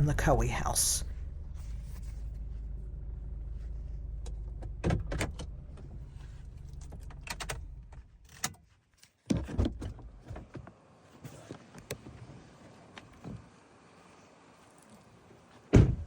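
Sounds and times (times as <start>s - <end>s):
car engine idling: 0.0s - 8.2s
car door opening and shutting: 4.5s - 6.0s, 15.7s - 16.0s.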